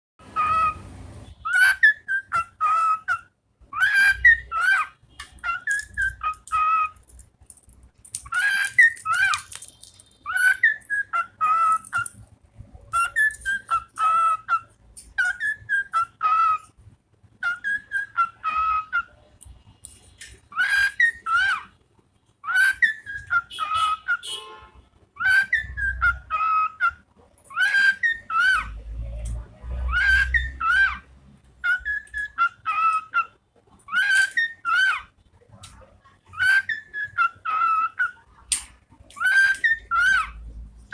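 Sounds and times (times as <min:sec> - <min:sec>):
bird whistling a tune: 0:01.4 - 0:07.0, 0:10.2 - 0:12.2, 0:12.9 - 0:16.6, 0:17.4 - 0:19.1, 0:22.4 - 0:24.2, 0:25.2 - 0:28.7, 0:31.6 - 0:33.3, 0:39.2 - 0:40.4.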